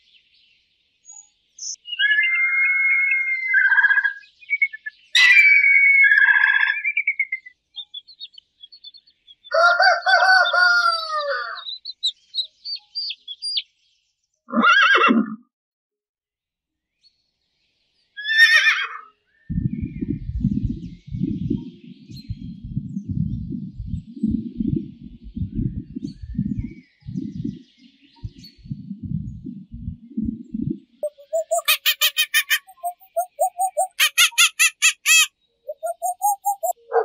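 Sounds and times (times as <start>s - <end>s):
rooster crowing: 9.5s - 11.6s
low rumbling noise: 19.5s - 31.6s
bird calls: 31.0s - 37.0s.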